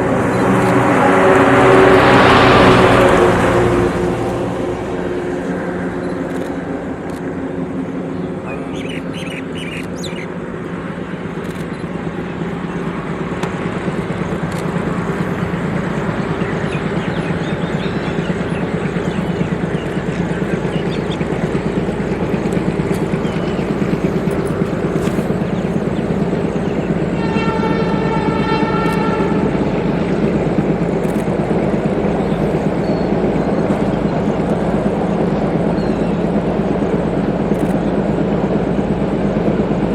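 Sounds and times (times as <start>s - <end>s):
train horn: 0.0s - 6.0s, 26.1s - 30.9s
diesel train engine running: 0.0s - 39.9s.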